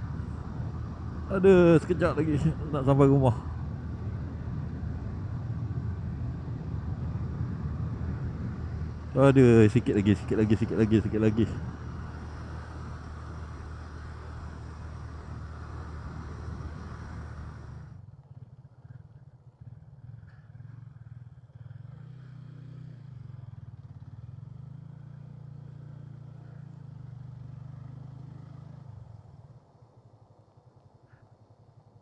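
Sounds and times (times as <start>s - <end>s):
wind and road rush: 0.0s - 32.0s
motorcycle engine running: 14.2s - 28.6s.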